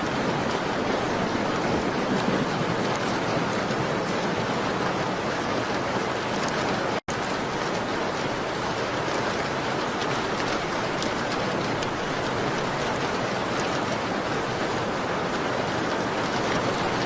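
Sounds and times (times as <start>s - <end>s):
rain on a window: 0.0s - 17.0s
ticks of raindrops: 0.0s - 17.0s.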